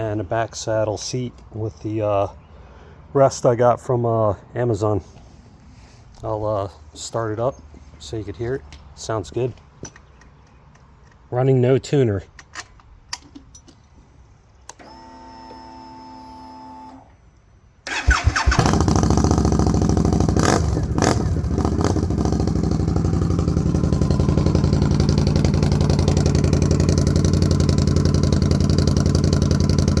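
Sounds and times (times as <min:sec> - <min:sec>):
motorcycle engine cranking and idling: 0:17.8 - 0:30.0
fuel pump hum: 0:17.9 - 0:30.0.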